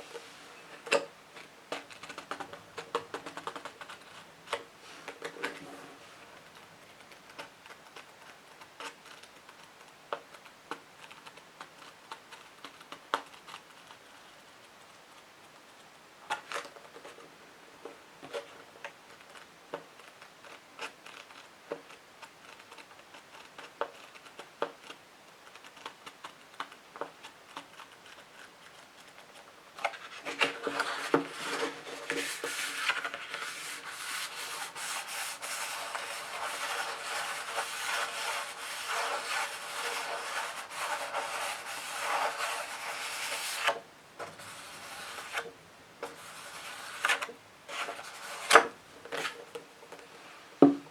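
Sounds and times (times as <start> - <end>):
scratching on a book: 1.4 - 17.3, 18.2 - 49.6.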